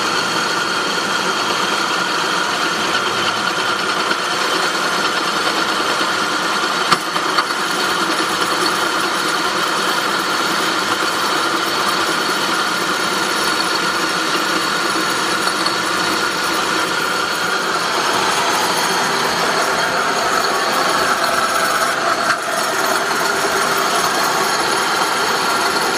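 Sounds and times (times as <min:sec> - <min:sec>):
car engine running: 0:00.2 - 0:25.9
metallic grinding from engine: 0:12.6 - 0:25.9.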